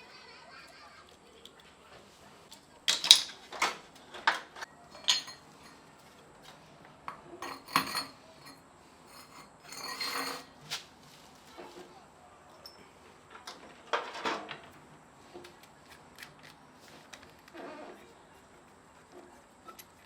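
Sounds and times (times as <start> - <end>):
hard objects clinking and clattering: 2.8 - 5.8, 7.1 - 10.6.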